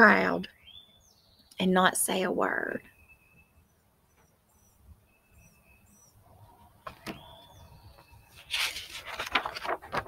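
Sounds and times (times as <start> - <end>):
birds chirping and whistling: 0.5 - 1.5, 2.8 - 6.2, 6.8 - 8.5
brief rustle: 8.3 - 10.0.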